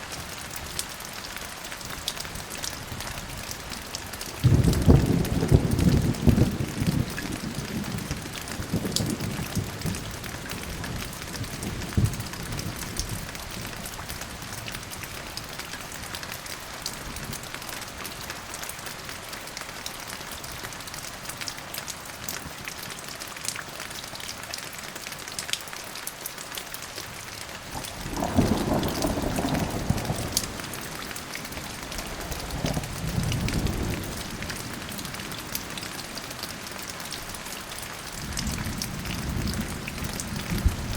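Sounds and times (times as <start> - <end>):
steady rain: 0.0 - 40.9
thunder rumbling: 4.4 - 13.0, 27.8 - 35.7, 38.2 - 40.9.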